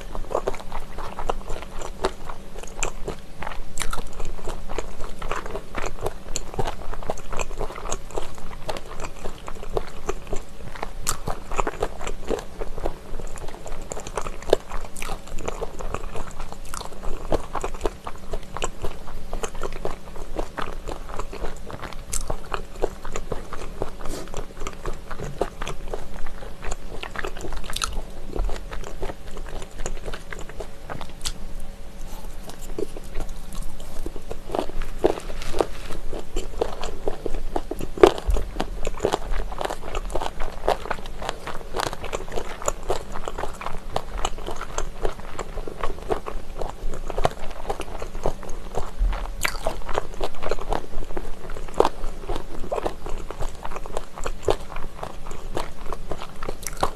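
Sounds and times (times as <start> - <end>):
crunching chewing: 0.0 - 56.9
wet mouth sounds: 20.9 - 31.4.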